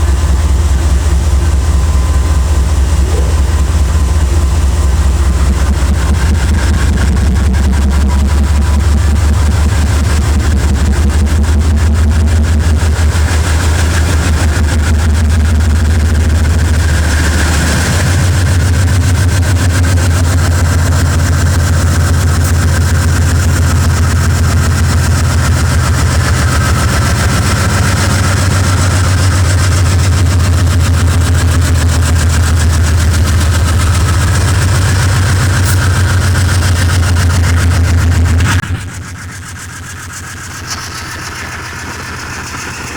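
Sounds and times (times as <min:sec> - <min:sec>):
locomotive diesel engine rumbling: 0:00.0 - 0:42.9.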